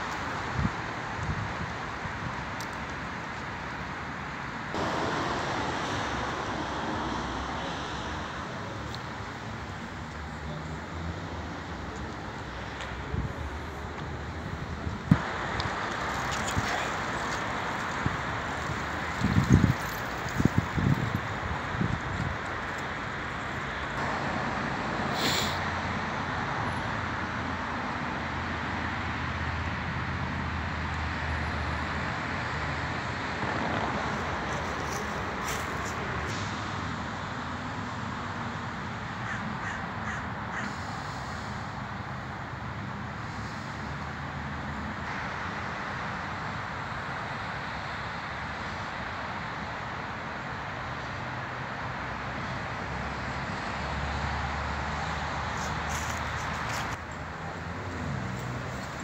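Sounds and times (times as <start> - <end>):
outdoor background rush: 0.0 - 59.0
birds cawing: 39.2 - 40.8.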